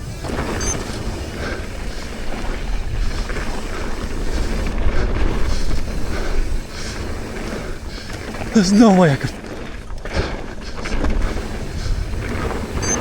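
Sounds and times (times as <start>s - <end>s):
wind buffeting microphone: 10.6s - 13.0s.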